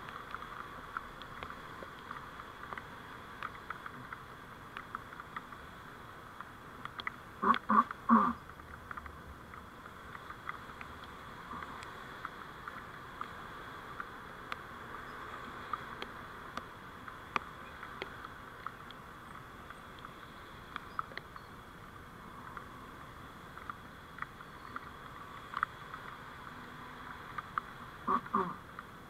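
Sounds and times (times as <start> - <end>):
road noise hiss: 0.0 - 29.0
small clicks and ticks: 0.0 - 29.0
faint high whine: 10.1 - 28.6.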